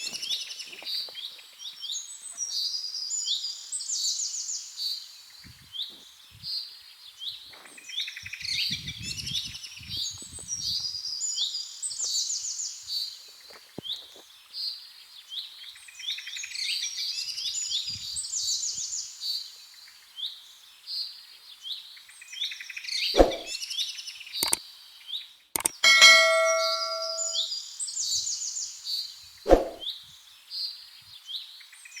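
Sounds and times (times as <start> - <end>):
metal struck and ringing: 25.6 - 27.4
sharp knocks: 25.6 - 27.4.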